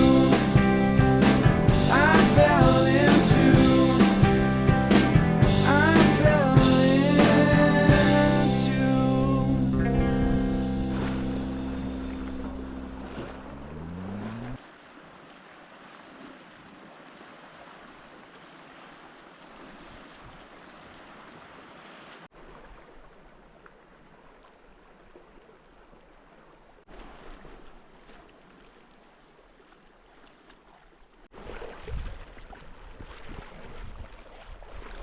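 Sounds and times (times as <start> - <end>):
lake water lapping around canoe: 9.9 - 35.0.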